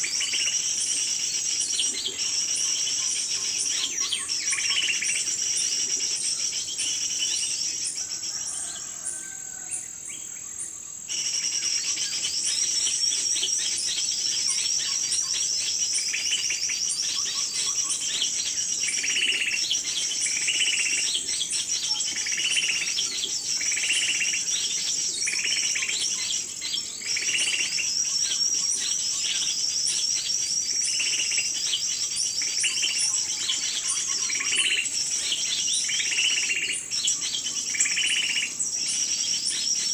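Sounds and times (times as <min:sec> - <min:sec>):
small birds chirping: 0:00.0 - 0:39.9
high-pitched insect buzz: 0:11.1 - 0:39.9.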